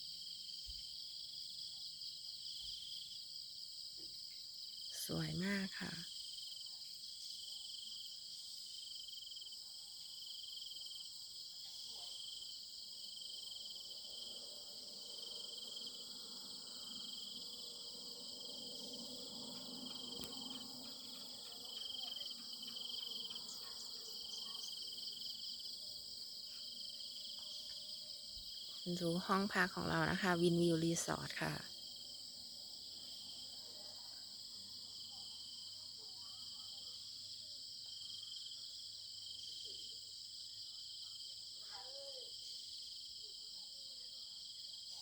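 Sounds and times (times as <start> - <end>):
insects trilling: 4.2 - 37.2.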